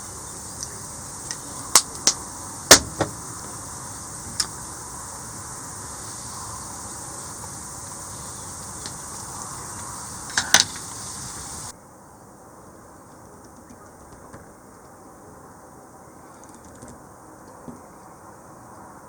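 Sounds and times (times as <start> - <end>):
steady high hiss: 0.0 - 19.0
campfire crackling and popping: 0.1 - 11.7.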